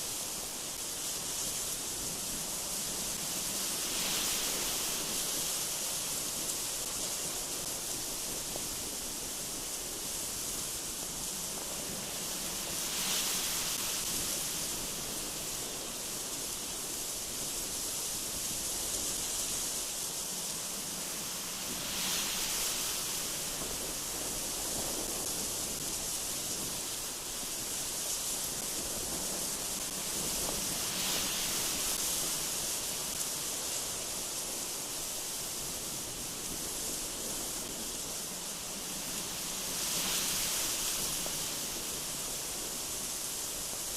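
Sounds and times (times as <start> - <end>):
gusty wind through trees: 0.0 - 43.9.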